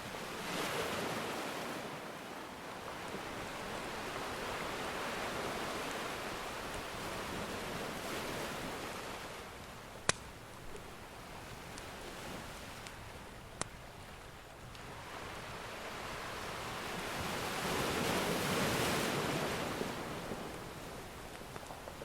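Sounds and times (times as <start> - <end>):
ocean waves washing onto shore: 0.0 - 22.0
faint wood fire crackle: 2.5 - 17.7, 18.4 - 22.0
fire pop: 10.0 - 10.3.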